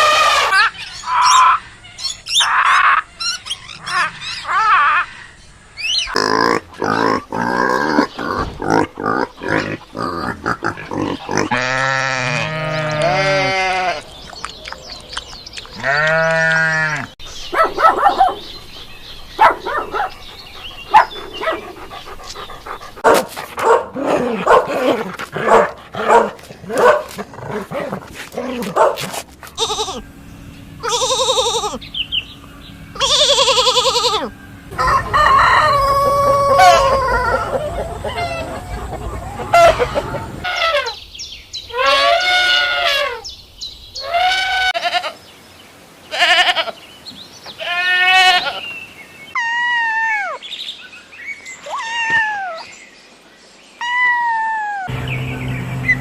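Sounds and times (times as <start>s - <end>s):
animal calls: 0.0s - 30.2s, 30.8s - 41.1s, 41.7s - 43.3s
long rising and falling calls: 29.6s - 41.0s.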